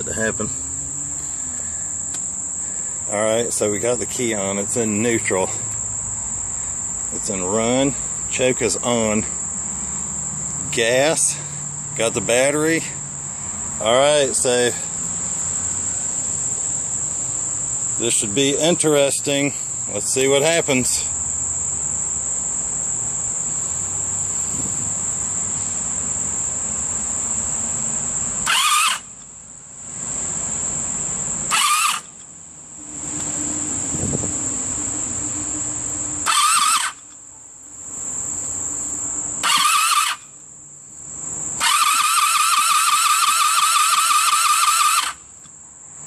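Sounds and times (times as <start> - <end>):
insects chirping: 0.0 - 46.0
electric starter cranking engine: 28.4 - 29.1, 31.5 - 32.2, 32.8 - 37.1, 39.4 - 40.3, 41.6 - 45.2.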